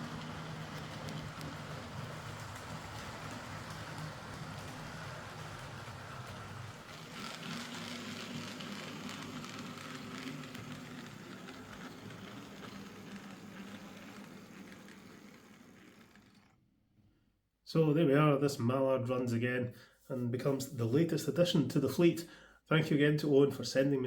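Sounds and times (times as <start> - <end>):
model train motor whirring: 0.0 - 16.7
wheels on rails: 0.0 - 16.7.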